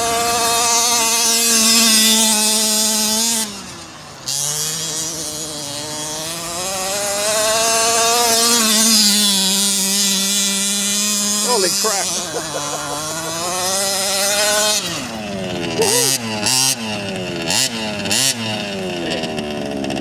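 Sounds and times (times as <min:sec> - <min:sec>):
small engine revving: 0:00.0 - 0:20.0.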